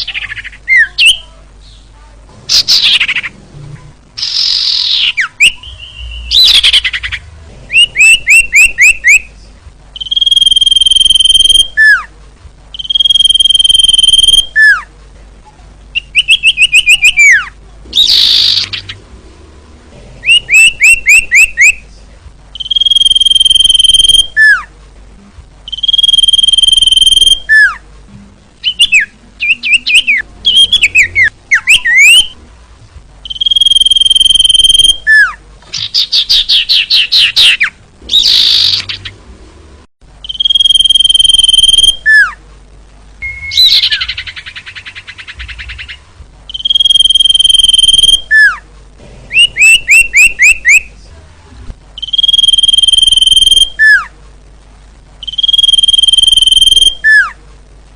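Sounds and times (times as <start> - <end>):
bird sharp chirping: 4.2 - 9.3, 10.0 - 12.1, 12.7 - 14.8, 16.0 - 19.0, 22.6 - 24.7, 25.7 - 27.8, 28.6 - 32.4, 33.2 - 39.2, 40.2 - 42.3, 43.2 - 48.6, 52.0 - 54.0, 55.2 - 57.3
bird harsh rasps: 28.6 - 32.3, 33.3 - 39.1
bird long whistles: 28.6 - 32.3, 46.5 - 48.5, 55.2 - 57.4.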